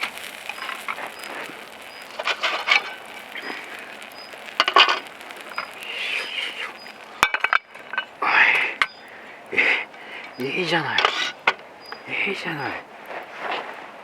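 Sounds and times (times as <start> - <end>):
fire crackling and sizzling: 0.0 - 14.0
faint high chirp: 4.1 - 4.5, 5.4 - 7.0, 8.8 - 9.1, 11.8 - 12.1.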